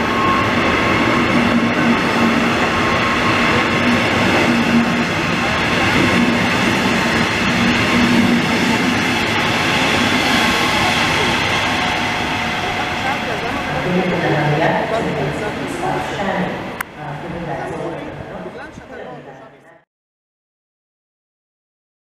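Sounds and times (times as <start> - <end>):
train wheels on rails: 0.0 - 18.8.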